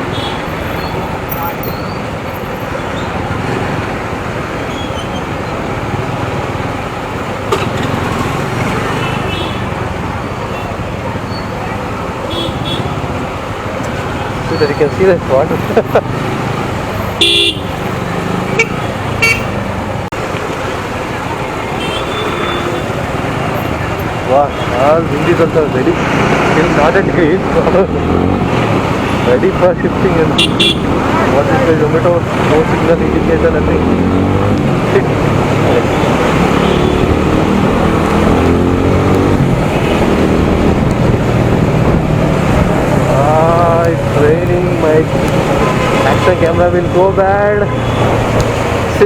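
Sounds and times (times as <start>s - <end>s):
road traffic noise: 0.0s - 49.0s
vehicle horn: 17.2s - 17.8s, 18.5s - 19.6s, 30.4s - 30.9s
motorcycle engine accelerating: 30.1s - 46.6s
wind on microphone: 39.0s - 43.2s.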